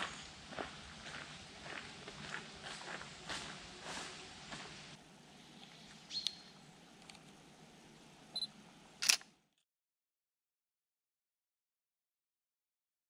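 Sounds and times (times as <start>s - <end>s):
camera focus beeps: 8.4s - 9.2s
camera shutter click: 9.0s - 9.3s.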